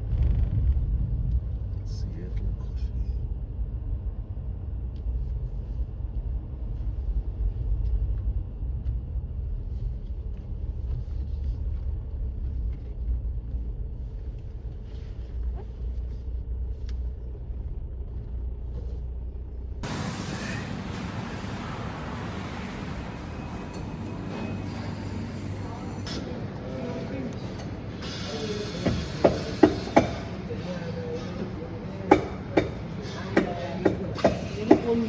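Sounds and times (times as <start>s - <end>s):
car engine and tyres rumbling: 0.0s - 35.0s
loud even hiss: 19.8s - 22.8s.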